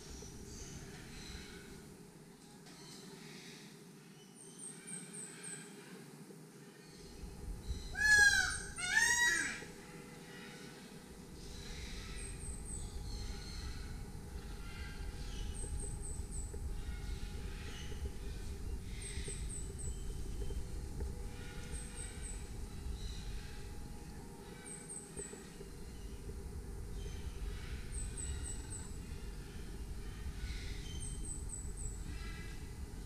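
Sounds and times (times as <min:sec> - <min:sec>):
harsh bird calls: 0:07.0 - 0:20.6.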